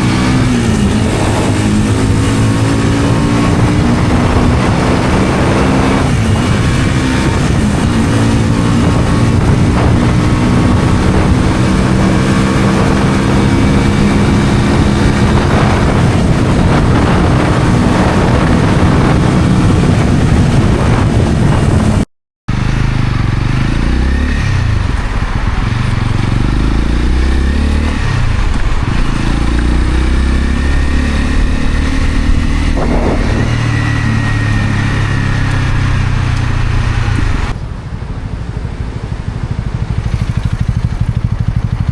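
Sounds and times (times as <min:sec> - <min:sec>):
motorcycle engine revving: 0:00.0 - 0:37.6, 0:38.2 - 0:41.9.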